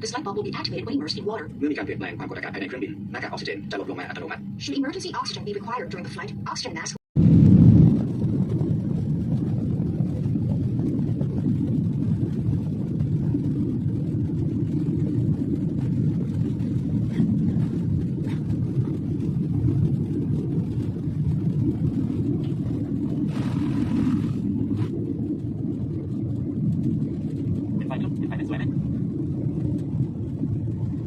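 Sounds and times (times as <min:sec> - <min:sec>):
jet engines rumbling in cabin: 0:00.0 - 0:31.0
rushing air: 0:07.2 - 0:31.0.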